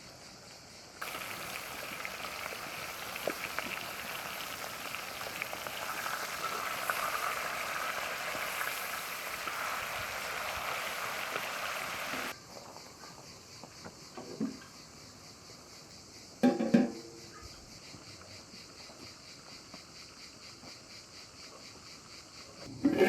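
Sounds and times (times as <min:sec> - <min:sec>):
food frying in hot oil: 0:01.0 - 0:12.4.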